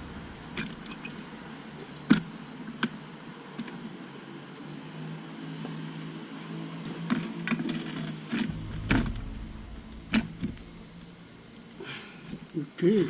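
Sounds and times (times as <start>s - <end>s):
brief low rumble: 0.0s - 1.4s, 8.5s - 11.8s
low mechanical hum: 0.0s - 2.2s, 8.5s - 12.3s.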